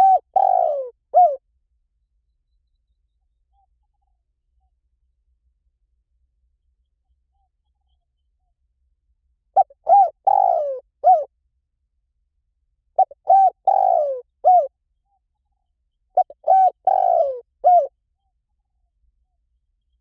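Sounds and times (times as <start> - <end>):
dove cooing: 0.0 - 1.4, 9.6 - 11.3, 13.0 - 14.7, 16.2 - 17.9.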